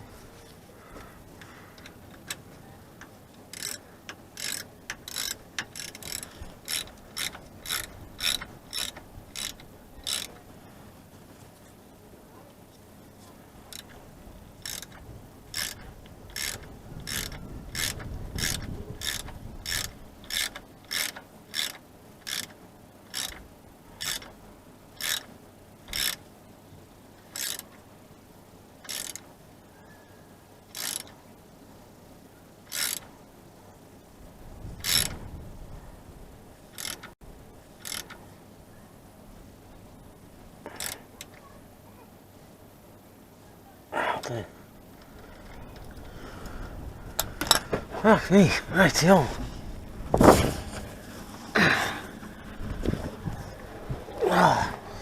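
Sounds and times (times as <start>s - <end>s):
ratchet wrench clicking: 3.5s - 3.8s, 4.4s - 10.3s, 14.6s - 15.0s, 15.6s - 23.4s, 24.0s - 24.3s, 25.0s - 25.3s, 25.9s - 26.2s, 27.3s - 27.7s, 28.8s - 29.3s, 30.7s - 31.1s, 32.7s - 33.1s, 34.8s - 35.1s, 36.7s - 37.1s, 37.8s - 38.2s, 40.7s - 41.4s.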